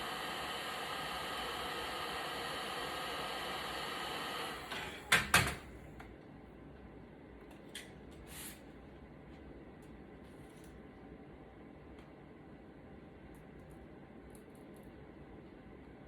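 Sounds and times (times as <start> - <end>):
small electric blower whirring: 0.0 - 4.7.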